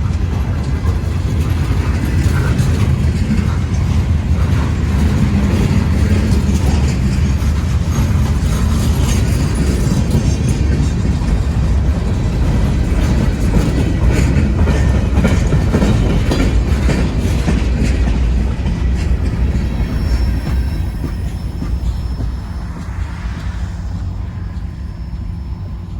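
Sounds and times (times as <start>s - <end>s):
wheels clicking over rail joints: 0.0s - 22.2s
freight train rumbling past: 0.0s - 25.9s.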